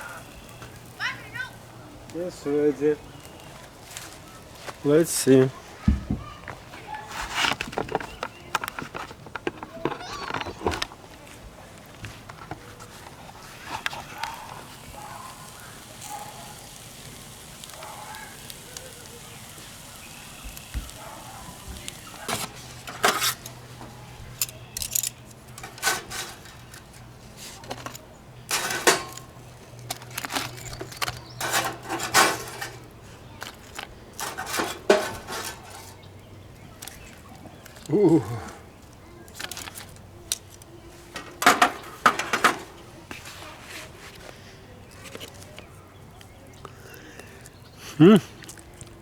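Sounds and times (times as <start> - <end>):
cookware and utensils clinking: 21.0 - 36.1, 41.2 - 42.8.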